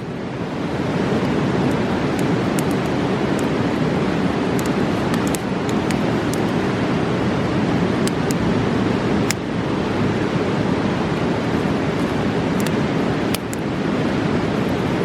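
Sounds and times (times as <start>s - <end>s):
river rushing: 0.0s - 15.0s
campfire crackling and popping: 1.2s - 6.6s, 12.0s - 13.7s.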